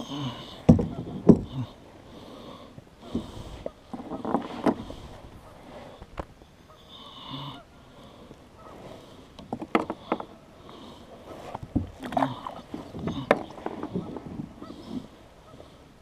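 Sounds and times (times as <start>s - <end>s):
knocks and clatter in boat: 0.0s - 1.8s, 3.0s - 6.3s, 9.4s - 10.4s, 11.3s - 15.2s.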